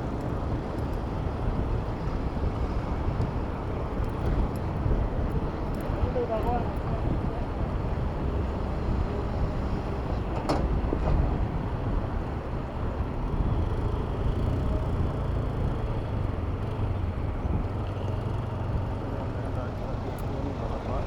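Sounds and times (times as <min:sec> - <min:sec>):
city road traffic: 0:00.0 - 0:21.0.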